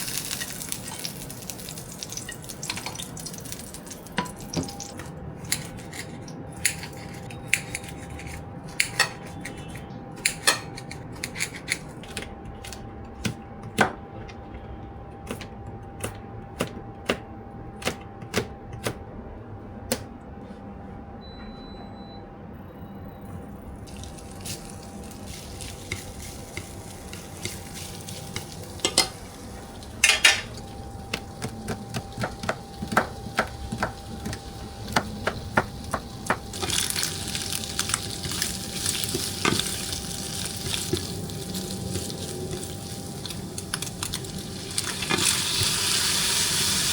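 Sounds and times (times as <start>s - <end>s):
utensils and dishes clinking: 0.0s - 12.0s, 23.9s - 31.5s, 32.2s - 45.8s.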